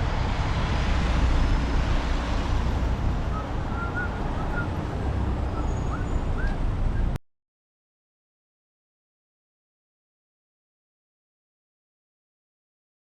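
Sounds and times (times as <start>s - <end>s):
wind rush on microphone: 0.0s - 7.2s.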